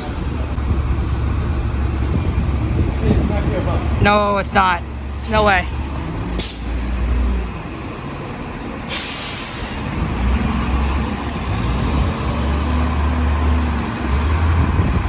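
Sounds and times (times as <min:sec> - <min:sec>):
bus diesel engine idling: 0:00.0 - 0:15.0
air brake hiss: 0:06.4 - 0:06.8, 0:08.9 - 0:09.8.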